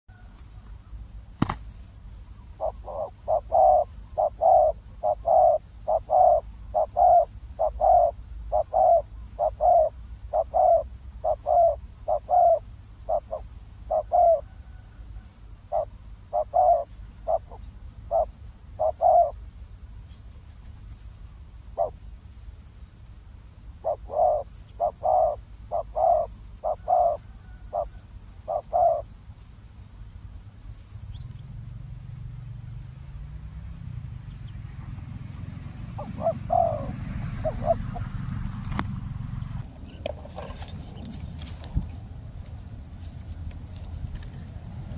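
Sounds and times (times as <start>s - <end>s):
small bird chirping: 1.4s - 14.6s, 15.2s - 22.6s, 23.7s - 29.2s, 33.0s - 38.2s, 39.3s - 41.8s
doves cooing: 2.5s - 15.0s, 15.6s - 19.4s, 21.7s - 22.0s, 23.8s - 29.1s, 34.9s - 41.2s.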